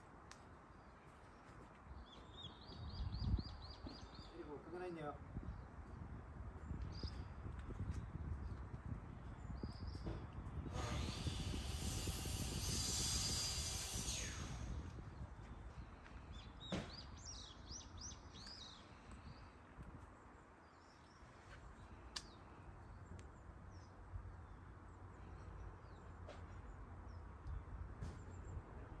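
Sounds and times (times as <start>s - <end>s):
small birds chirping: 0.4s - 28.9s
low outdoor rumble: 2.7s - 21.0s.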